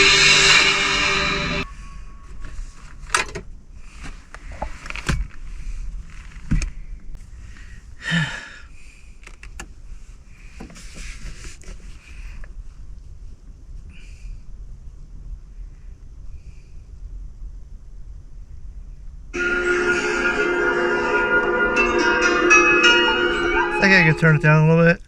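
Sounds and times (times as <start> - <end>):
rustling scrape: 0.0 - 3.2, 3.8 - 6.9, 10.0 - 12.4.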